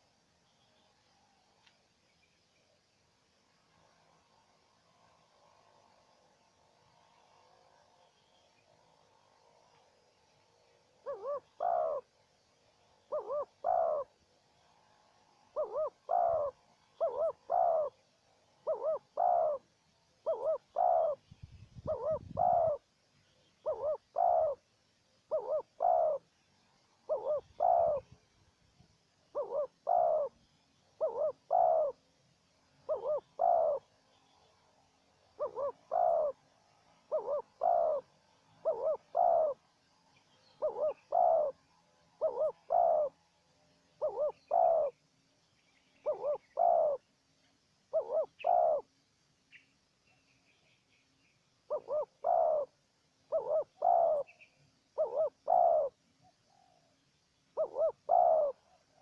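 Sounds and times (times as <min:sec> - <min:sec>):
doves cooing: 0:10.9 - 0:12.2, 0:12.9 - 0:21.2, 0:21.8 - 0:22.9, 0:23.6 - 0:24.6, 0:25.3 - 0:26.3, 0:26.9 - 0:28.2, 0:29.2 - 0:32.0, 0:32.7 - 0:34.1, 0:35.2 - 0:39.8, 0:40.5 - 0:43.2, 0:43.9 - 0:45.0, 0:46.0 - 0:47.1, 0:47.9 - 0:48.9, 0:51.7 - 0:54.4, 0:55.0 - 0:57.0, 0:57.6 - 0:59.0.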